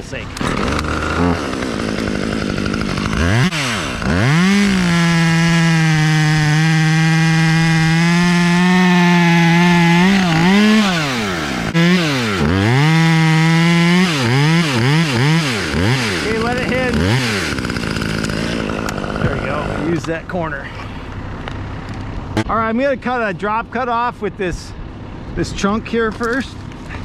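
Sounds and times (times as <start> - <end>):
chainsaw cutting wood: 0.3 - 20.2.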